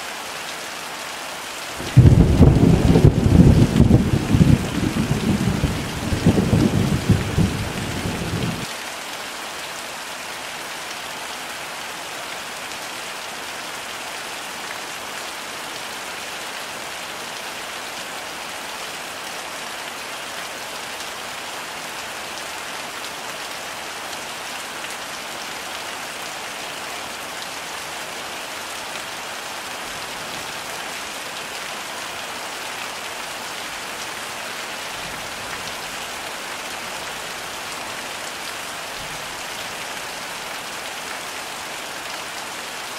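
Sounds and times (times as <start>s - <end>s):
heavy rain hissing: 0.9s - 8.8s
low thunder rumble: 1.8s - 8.6s.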